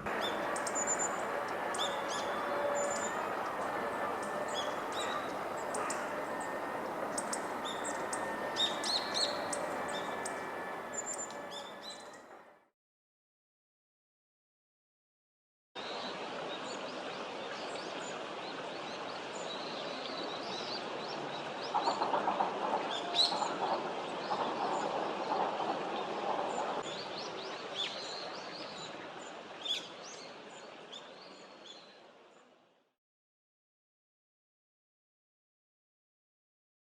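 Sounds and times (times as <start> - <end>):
bird call notes: 0.0 - 12.2
outdoor background hiss: 0.0 - 12.2.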